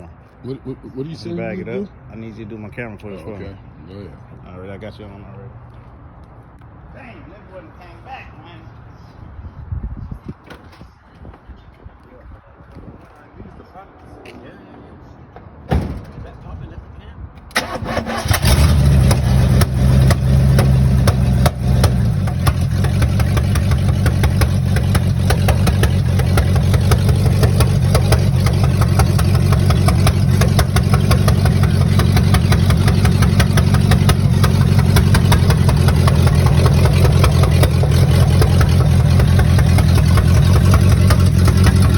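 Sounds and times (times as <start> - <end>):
car engine starting and idling: 17.4 - 41.9.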